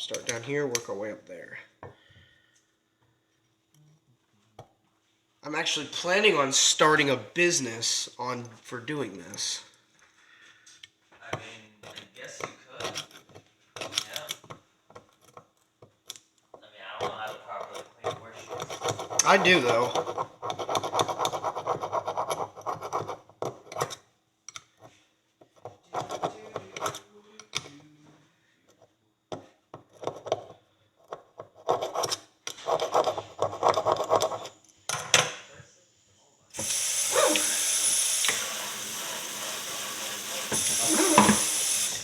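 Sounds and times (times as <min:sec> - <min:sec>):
running tap water hiss: 0:36.6 - 0:42.0.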